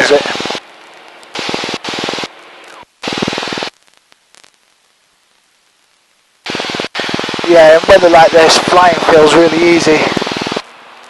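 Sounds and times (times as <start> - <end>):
aircraft engine and propeller drone: 7.0 - 10.6.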